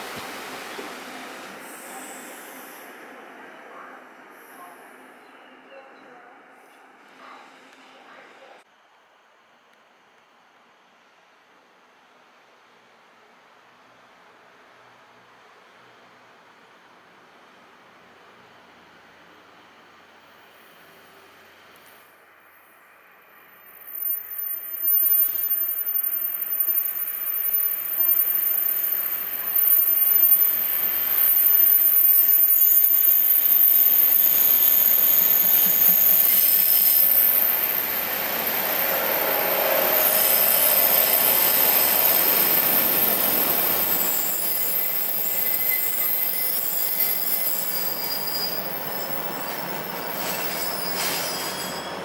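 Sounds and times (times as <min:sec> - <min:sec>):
train running past: 0:00.0 - 0:08.6, 0:13.9 - 0:52.0
wheel squeal on rails: 0:23.7 - 0:52.0.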